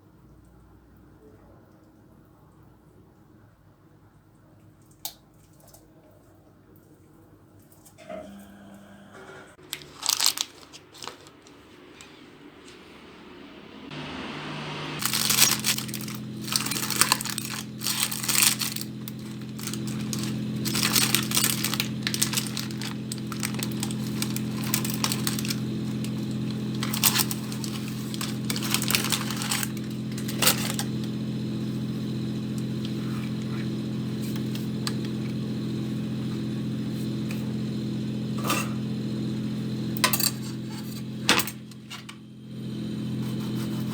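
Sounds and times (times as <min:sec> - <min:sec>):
electric appliance hum: 0:07.8 - 0:43.9
kitchen items clinking and rattling: 0:09.6 - 0:11.7, 0:15.0 - 0:31.2, 0:40.0 - 0:42.2.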